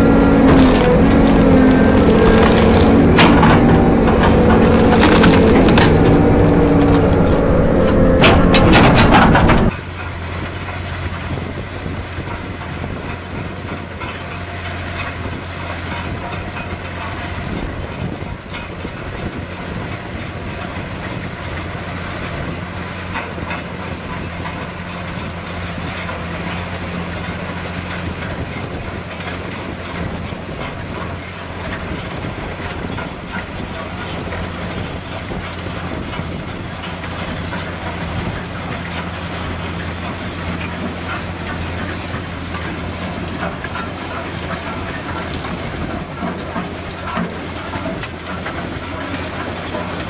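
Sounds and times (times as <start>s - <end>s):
wood cracking and splintering: 0.0s - 11.2s
heavy machine engine humming: 0.0s - 50.0s.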